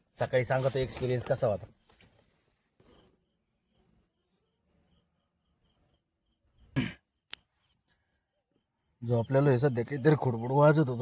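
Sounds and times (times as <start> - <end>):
insect chirping faintly: 0.0 - 11.0.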